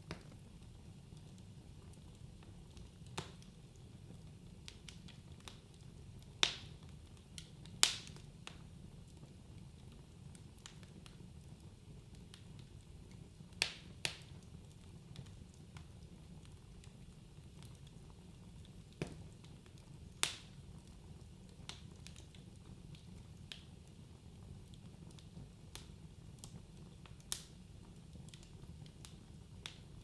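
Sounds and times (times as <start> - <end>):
burning logs popping: 0.0 - 30.0
fire crackling: 0.0 - 30.0
low rumble of flame: 0.0 - 30.0.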